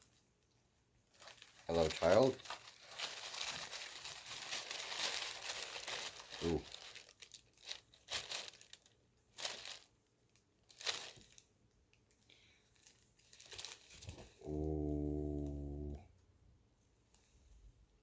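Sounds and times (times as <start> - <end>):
packaging crinkling and tearing: 1.1 - 12.1, 12.8 - 14.4.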